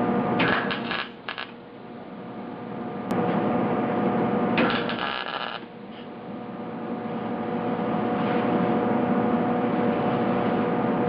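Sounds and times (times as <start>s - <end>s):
arc welder crackling: 0.4s - 1.7s, 4.6s - 5.7s.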